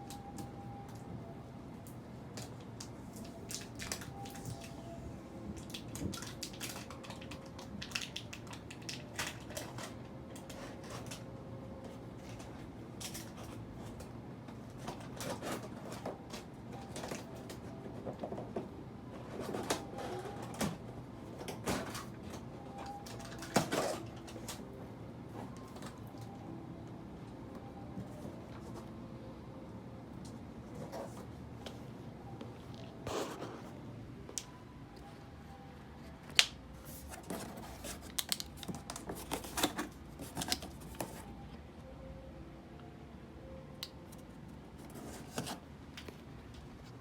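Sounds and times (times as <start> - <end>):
packaging clicks and crinkles: 36.3 - 41.4.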